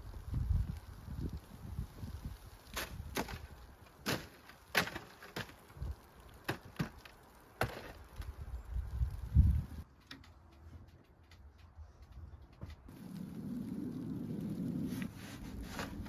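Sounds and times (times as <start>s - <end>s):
dry wood snapping: 2.6s - 9.1s.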